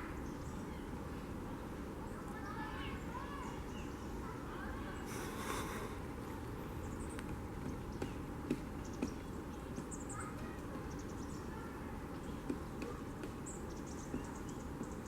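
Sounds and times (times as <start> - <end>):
small birds chirping: 2.0 - 15.0
background hush: 5.0 - 6.4.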